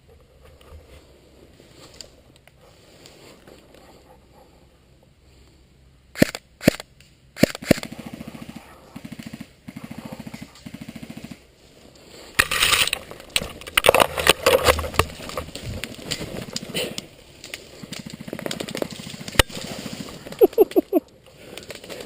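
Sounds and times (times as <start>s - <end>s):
airsoft gun full-auto bursts: 7.4s - 8.3s
clattering noise: 12.4s - 17.0s.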